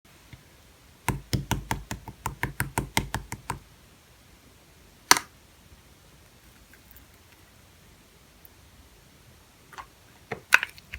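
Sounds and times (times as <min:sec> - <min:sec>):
rapid taps: 0:01.1 - 0:03.7.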